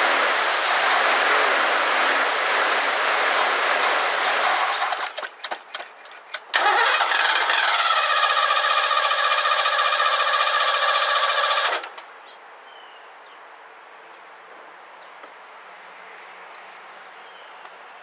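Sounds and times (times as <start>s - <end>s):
engine cranking on starter: 4.3s - 12.0s.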